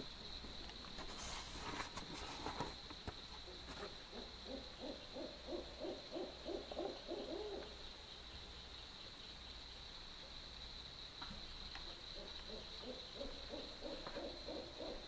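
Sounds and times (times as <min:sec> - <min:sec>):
owl hooting: 0:03.4 - 0:07.8, 0:11.9 - 0:15.0.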